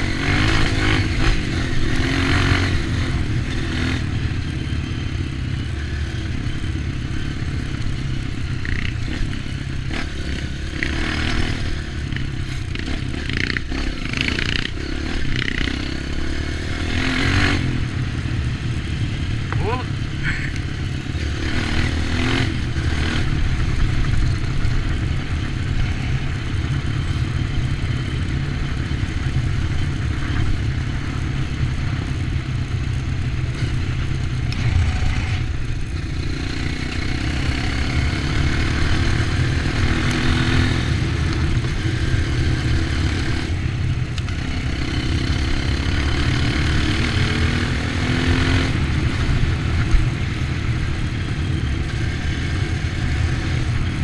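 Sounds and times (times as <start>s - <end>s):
dirt bike engine revving: 0.0s - 18.6s, 19.5s - 27.2s, 33.4s - 43.7s, 44.3s - 50.2s.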